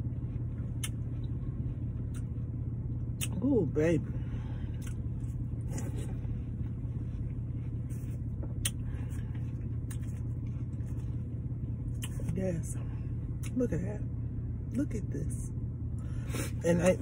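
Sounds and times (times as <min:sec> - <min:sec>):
wet chewing and smacking: 0:00.0 - 0:03.4, 0:04.7 - 0:12.4
low car rumble: 0:00.0 - 0:17.0.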